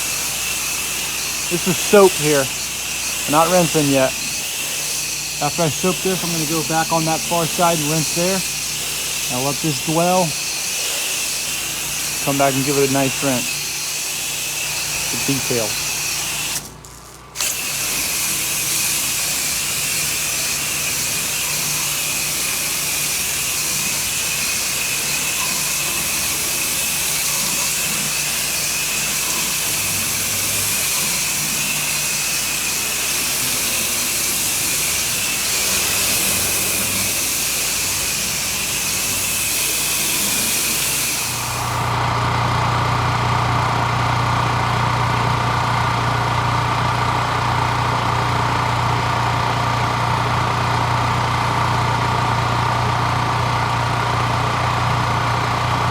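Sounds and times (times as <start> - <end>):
pressure washer spray hiss: 0.0 - 16.7, 17.4 - 42.0
engine running: 0.0 - 55.9.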